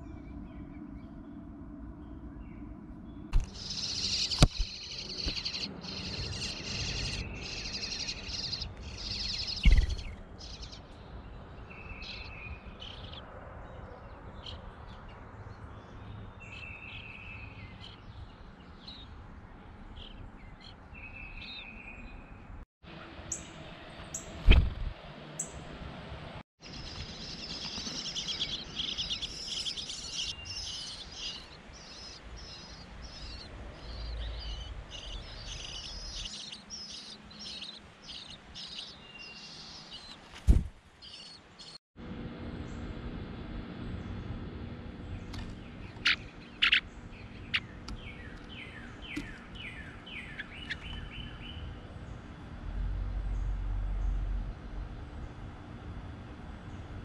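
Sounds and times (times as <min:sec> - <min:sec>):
small birds chirping: 0:00.0 - 0:25.6, 0:26.6 - 0:41.8, 0:43.8 - 0:57.0
low rumble: 0:23.5 - 0:26.4.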